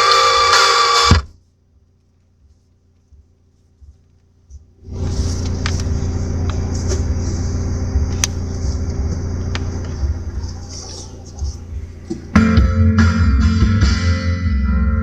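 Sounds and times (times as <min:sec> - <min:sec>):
car engine rumbling: 0:04.0 - 0:12.6.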